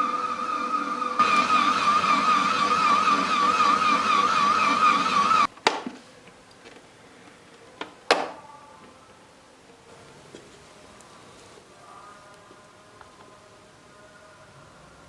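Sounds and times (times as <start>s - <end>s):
small electric motor whining: 0.0s - 5.5s.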